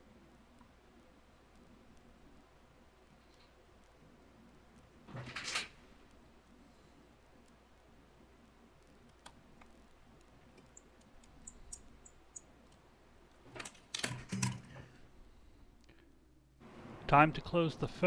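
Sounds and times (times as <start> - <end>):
small tools clicking: 10.5 - 12.9.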